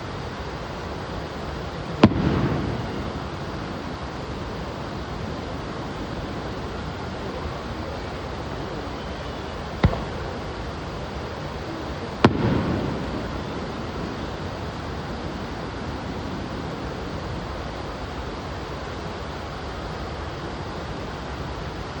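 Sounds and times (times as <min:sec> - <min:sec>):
steady rushing noise: 0:00.0 - 0:22.0
fireworks bursting with bangs: 0:01.5 - 0:07.3, 0:09.5 - 0:16.2.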